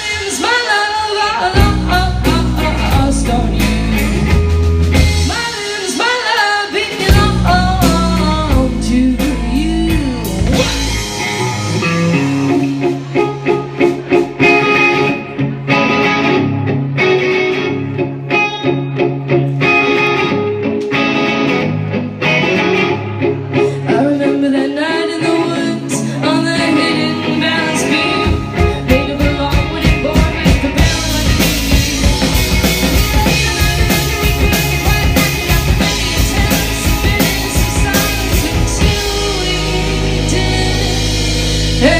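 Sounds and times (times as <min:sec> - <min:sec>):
woman singing: 0:00.0 - 0:04.2, 0:05.0 - 0:11.3, 0:23.7 - 0:41.9
bass guitar: 0:00.0 - 0:06.2, 0:06.8 - 0:41.9
drums: 0:00.0 - 0:41.9
electric guitar: 0:00.0 - 0:41.9.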